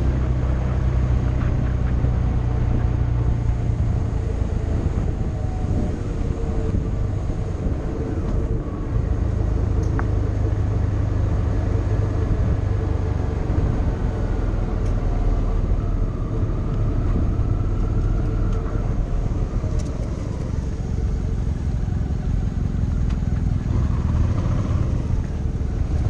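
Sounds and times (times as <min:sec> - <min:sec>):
road and wind rumble: 0:00.0 - 0:26.0
motorcycle engine running: 0:15.5 - 0:26.0.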